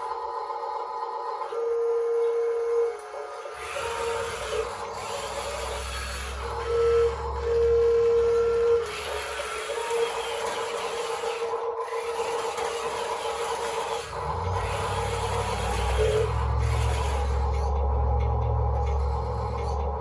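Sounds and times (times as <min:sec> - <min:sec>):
electric hydraulic pump whining: 0:00.0 - 0:20.0
low hum: 0:03.8 - 0:10.1, 0:14.0 - 0:20.0.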